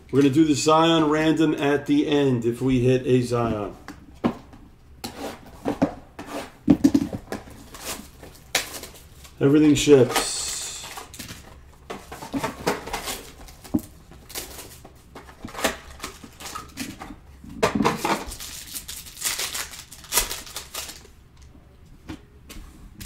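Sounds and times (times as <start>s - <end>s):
wrappers rustling: 18.0s - 21.1s.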